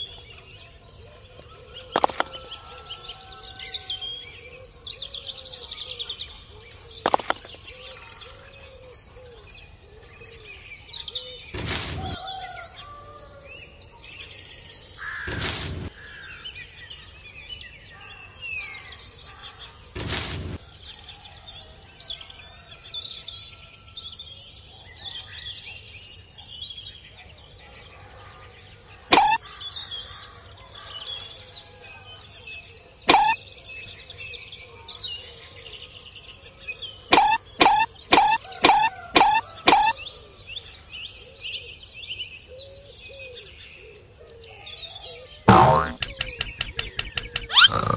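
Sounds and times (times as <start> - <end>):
small birds chirping: 1.9 - 2.7, 7.1 - 8.3, 11.5 - 12.2, 15.0 - 16.3, 19.8 - 20.8, 29.1 - 29.5, 33.0 - 33.4, 37.1 - 40.0, 45.5 - 47.9
sharp knocks: 7.1 - 7.6, 45.5 - 47.9.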